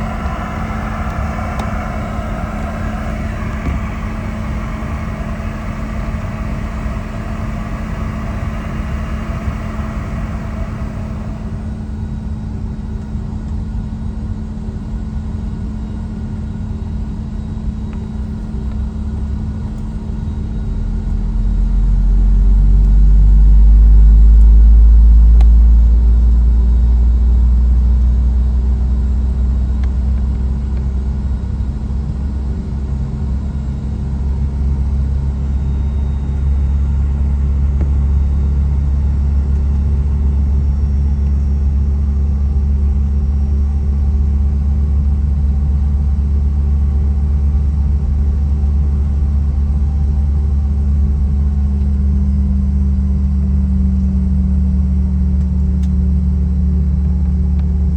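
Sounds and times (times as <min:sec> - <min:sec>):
steady cabin hum: 0:00.0 - 0:12.3
deep jet engine rumble: 0:00.0 - 0:14.6, 0:17.1 - 0:57.9.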